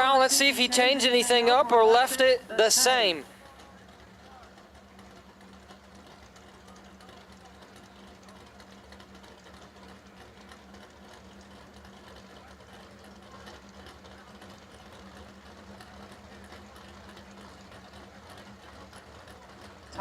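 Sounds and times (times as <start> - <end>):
faint race car engines idling: 0.0 - 20.0.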